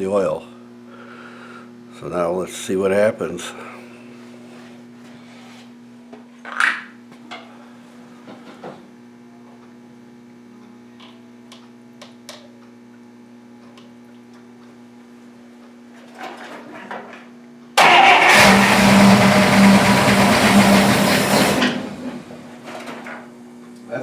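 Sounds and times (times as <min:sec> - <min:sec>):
car engine starting and running: 0:17.8 - 0:22.6.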